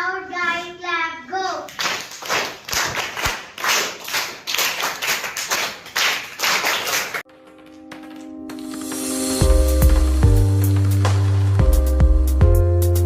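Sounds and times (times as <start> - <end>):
children clapping in rhythm: 1.6 - 8.3
steady music tones: 7.3 - 13.0.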